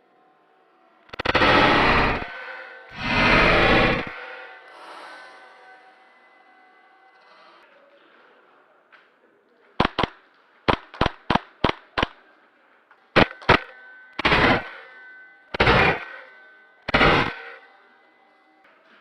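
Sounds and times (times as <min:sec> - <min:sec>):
airsoft gun single shots: 0:09.8 - 0:10.1, 0:10.7 - 0:12.1
airsoft gun short bursts: 0:10.7 - 0:12.1.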